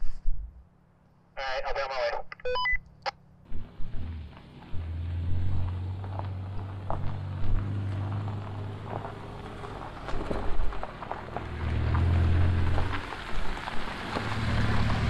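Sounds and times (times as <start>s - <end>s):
car engine humming: 2.9s - 15.0s
tyres crunching over rocks: 3.5s - 15.0s.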